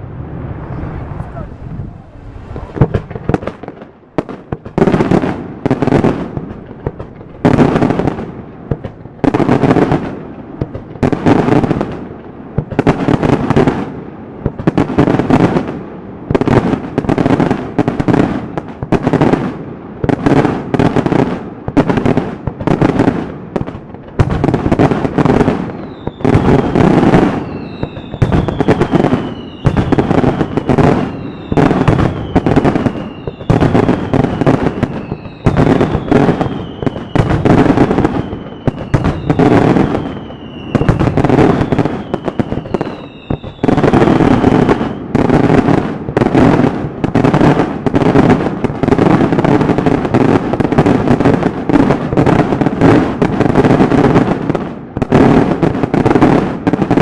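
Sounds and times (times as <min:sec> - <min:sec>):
firework bursts: 0:00.0 - 0:57.0
falling firework whistles: 0:25.1 - 0:45.6.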